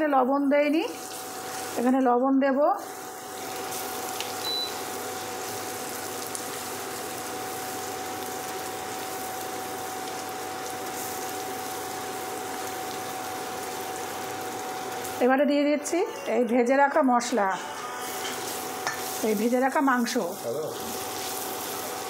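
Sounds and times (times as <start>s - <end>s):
spice paste sizzling in hot oil: 0.0s - 15.4s, 16.7s - 22.0s
short high beep: 4.4s - 4.8s
spatula stirring in pan: 17.8s - 19.4s.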